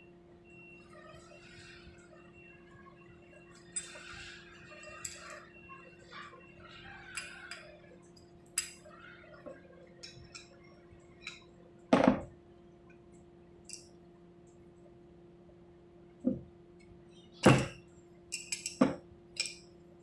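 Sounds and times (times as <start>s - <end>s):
faint steady hum: 0.0s - 20.0s
small metal parts clinking: 4.8s - 5.4s, 8.6s - 8.8s, 18.3s - 19.7s.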